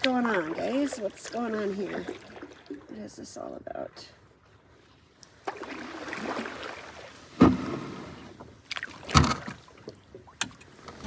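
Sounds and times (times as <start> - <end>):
water swishing: 0.0 - 11.0
knocks on canoe: 7.4 - 8.0.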